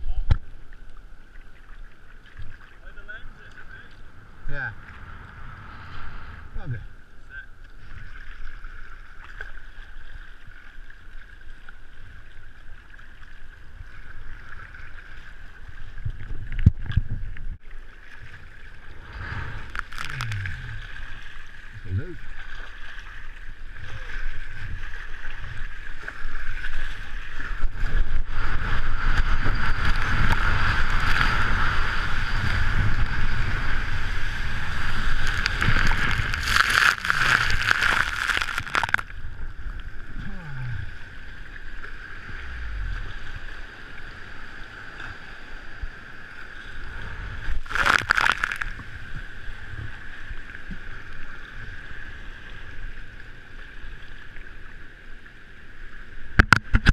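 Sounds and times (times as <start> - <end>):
low rumble: 3.0 - 7.6, 18.5 - 22.4, 27.3 - 44.5
loud rushes of water: 27.4 - 39.0
water sloshing around kayak: 33.4 - 40.2.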